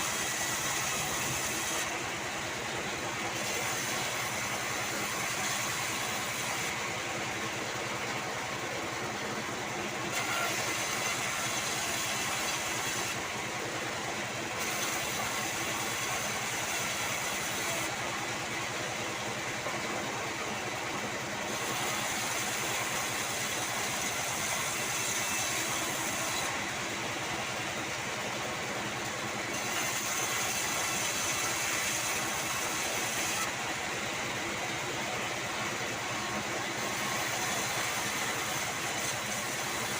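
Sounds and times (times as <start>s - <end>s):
sawmill mechanical drone: 0.0s - 39.9s
saw blade cutting timber hiss: 21.6s - 26.6s.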